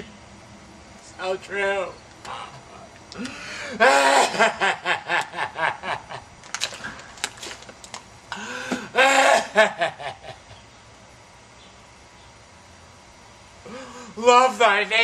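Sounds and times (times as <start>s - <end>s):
person laughing: 2.3s - 6.3s.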